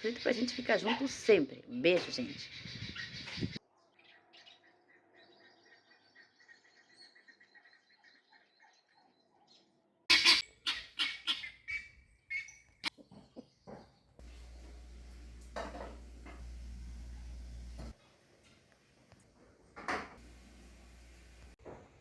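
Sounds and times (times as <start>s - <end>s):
bird chirping: 2.1s - 14.3s
harsh bird squawks: 10.1s - 12.7s.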